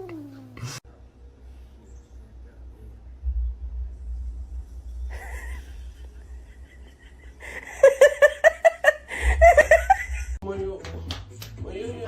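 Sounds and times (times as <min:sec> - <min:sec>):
person laughing in bursts: 0:05.1 - 0:10.4.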